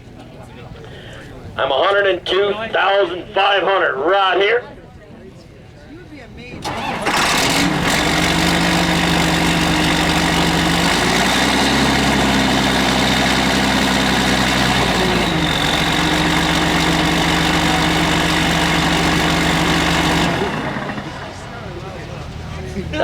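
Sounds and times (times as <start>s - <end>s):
tractor diesel engine running: 6.4s - 23.0s.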